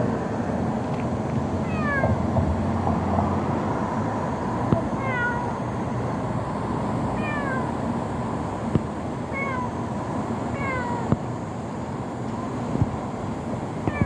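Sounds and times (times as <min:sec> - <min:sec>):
kitten mewing: 0:01.6 - 0:02.2, 0:04.8 - 0:05.6, 0:07.2 - 0:07.8, 0:09.3 - 0:09.8, 0:10.6 - 0:11.2.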